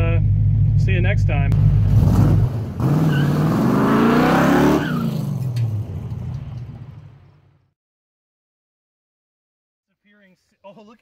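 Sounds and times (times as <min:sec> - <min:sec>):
car engine revving: 0:00.0 - 0:07.4.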